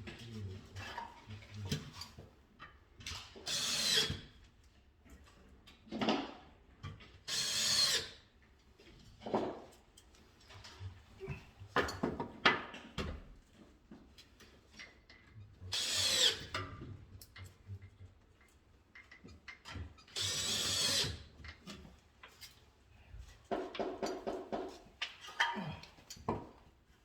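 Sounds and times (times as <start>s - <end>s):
cordless drill bursts: 20.2s - 21.0s.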